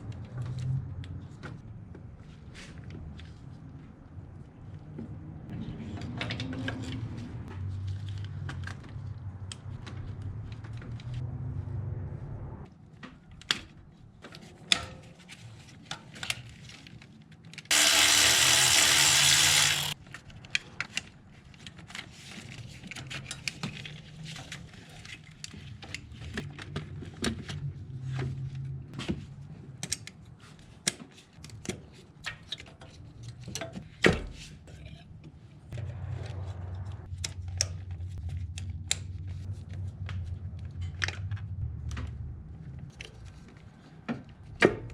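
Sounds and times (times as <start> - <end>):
power tool running: 17.7 - 20.0.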